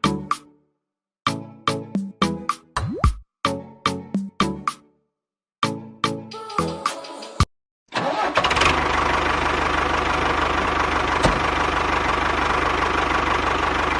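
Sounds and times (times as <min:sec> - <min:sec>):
engine starting and chugging: 0:07.9 - 0:13.9.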